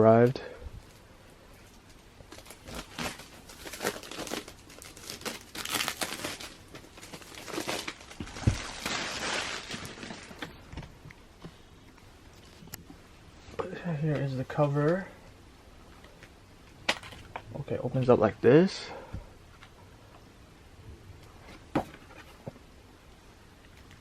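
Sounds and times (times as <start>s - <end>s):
packaging crinkling and tearing: 2.3s - 10.6s.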